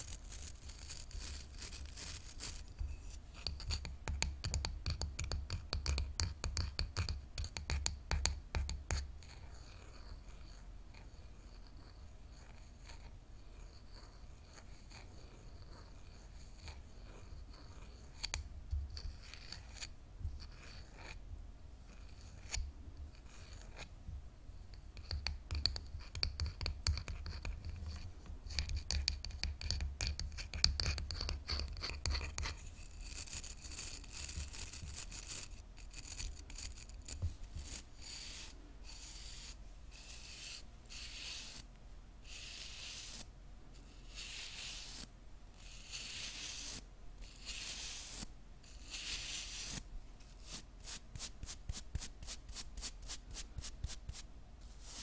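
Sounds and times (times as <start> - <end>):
hairbrush bristles scratching: 0.0 - 3.6, 32.4 - 41.6.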